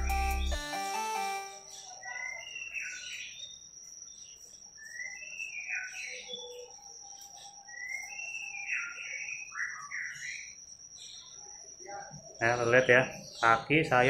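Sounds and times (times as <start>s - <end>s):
thin high tone: 0.0s - 2.4s
songbird whistling: 0.0s - 3.5s, 4.8s - 11.6s.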